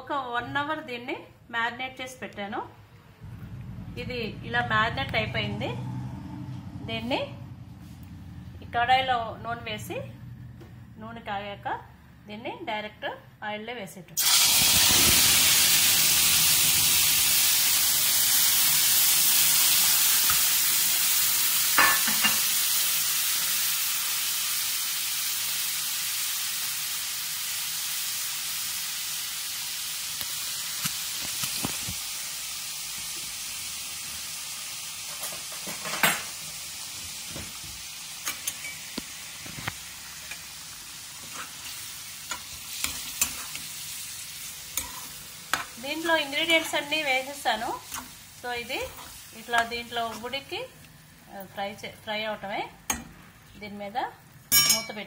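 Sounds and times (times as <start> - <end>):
food sizzling in hot oil: 14.2 - 55.0
spoon scraping metal pan: 41.2 - 43.7, 44.7 - 47.0.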